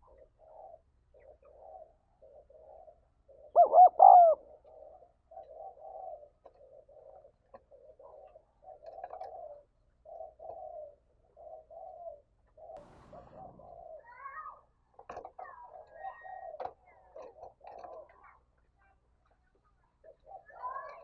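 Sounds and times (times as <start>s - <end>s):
dove cooing: 0.0s - 14.0s
higher bird calls: 12.8s - 14.5s.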